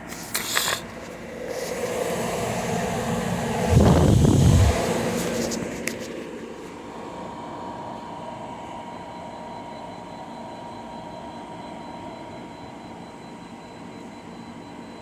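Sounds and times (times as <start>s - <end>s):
air conditioner fan rushing: 0.0s - 11.0s
faint steady whine: 0.0s - 15.0s.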